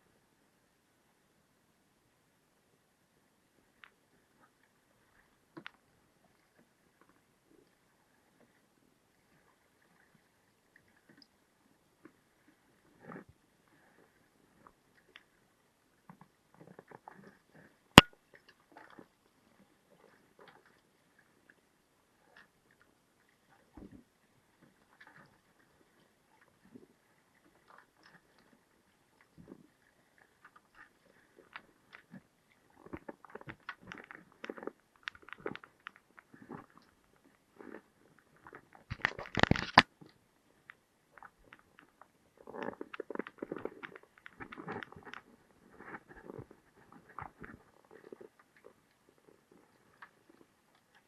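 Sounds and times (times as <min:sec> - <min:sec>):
crunching and clicking: 0:32.8 - 0:36.9, 0:38.4 - 0:39.9, 0:41.2 - 0:46.5.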